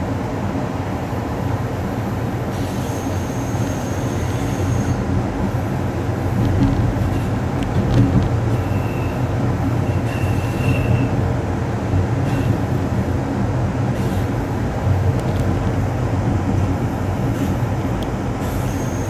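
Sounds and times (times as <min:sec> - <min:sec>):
train wheels rumbling on rail: 0:00.0 - 0:19.0
high wheel squeals: 0:02.6 - 0:05.1, 0:08.5 - 0:11.2, 0:18.4 - 0:19.0.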